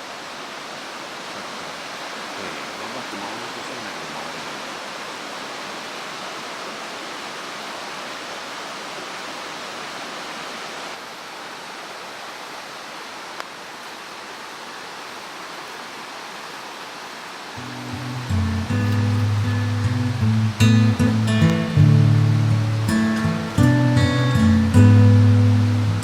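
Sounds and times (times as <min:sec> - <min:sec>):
stream rushing: 0:00.0 - 0:26.0.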